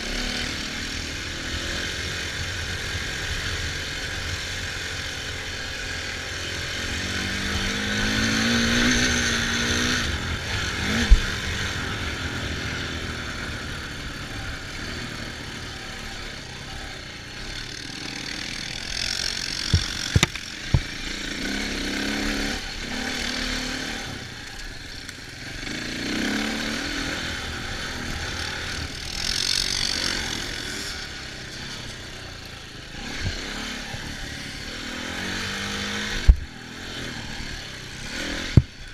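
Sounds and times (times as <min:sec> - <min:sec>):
off-road engines revving: 0:00.0 - 0:38.9
sharp knocks: 0:19.7 - 0:20.9.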